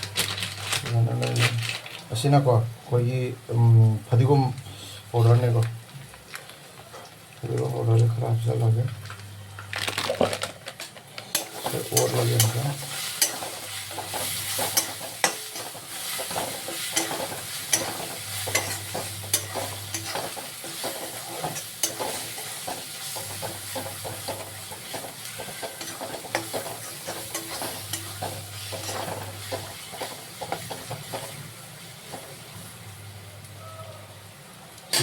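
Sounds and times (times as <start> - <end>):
food sizzling in oil: 11.2 - 33.5
spatula scraping a pan: 11.3 - 31.4.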